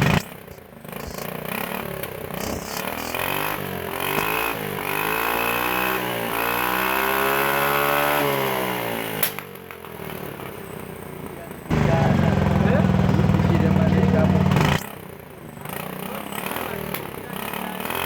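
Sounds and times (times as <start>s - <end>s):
scooter engine revving: 0.0s - 18.0s
exhaust backfire pop: 3.9s - 5.0s.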